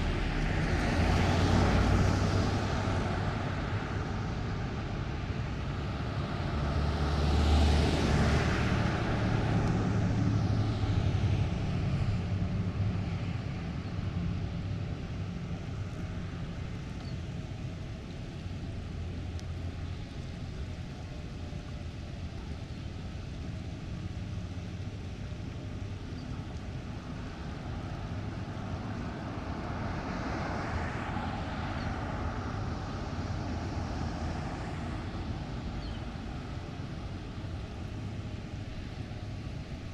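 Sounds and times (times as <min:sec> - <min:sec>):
low rumble: 0:00.0 - 0:04.4
vehicles passing: 0:00.0 - 0:39.9.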